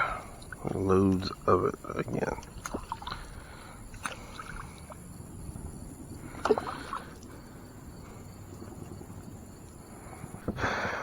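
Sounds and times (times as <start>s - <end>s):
kayak moving on water: 0.0s - 11.0s.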